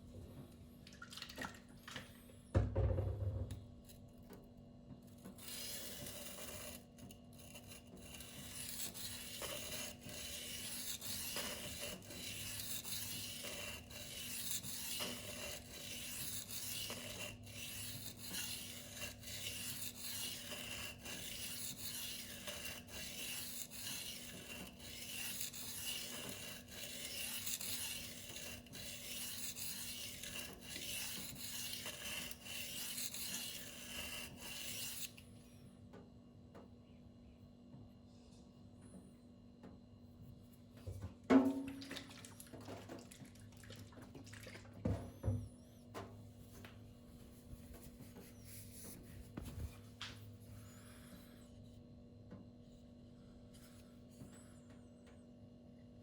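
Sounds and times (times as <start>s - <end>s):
knife scraping on whetstone: 5.1s - 35.2s, 47.2s - 51.7s.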